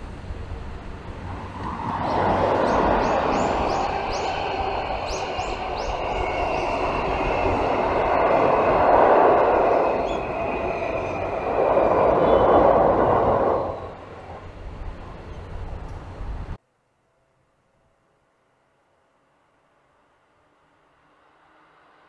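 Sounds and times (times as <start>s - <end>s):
train wheels rumbling past: 0.0s - 16.6s.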